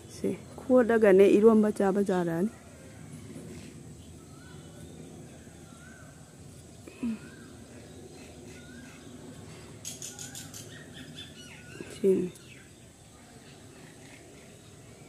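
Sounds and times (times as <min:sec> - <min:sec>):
bird chirping: 0:04.0 - 0:06.3, 0:07.0 - 0:14.8.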